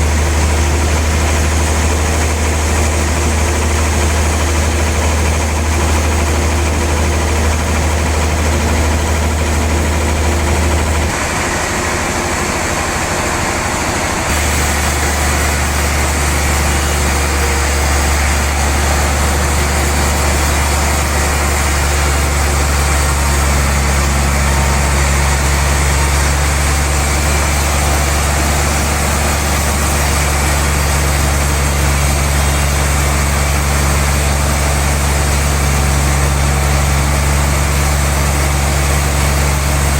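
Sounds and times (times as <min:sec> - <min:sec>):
sawmill machinery deep hum: 0:00.0 - 0:39.9.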